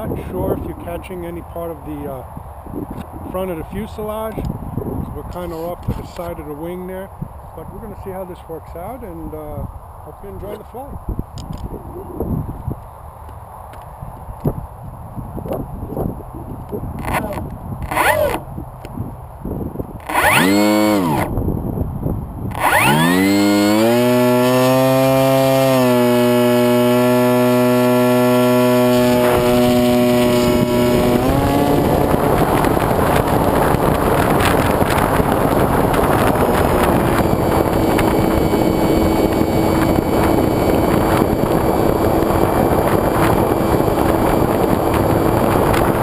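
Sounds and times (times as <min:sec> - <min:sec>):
wind noise: 0:00.0 - 0:46.0
model plane motor whining: 0:16.9 - 0:18.5, 0:20.0 - 0:21.4, 0:22.5 - 0:46.0.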